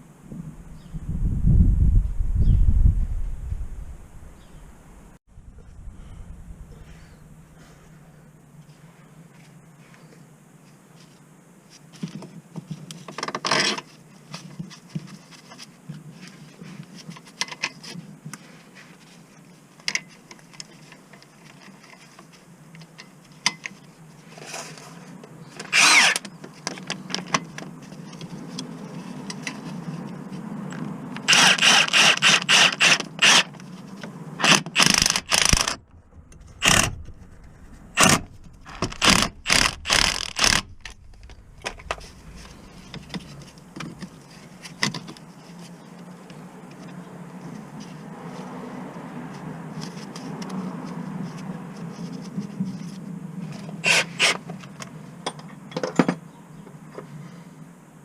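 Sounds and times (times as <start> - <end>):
steady low hum: 0.0 - 10.6, 34.9 - 44.6
loud repeated tool strokes: 25.6 - 26.2, 31.2 - 33.6, 34.4 - 35.8, 36.6 - 37.0, 38.0 - 40.9, 53.8 - 54.4
tools clicking and scraping: 25.6 - 45.3.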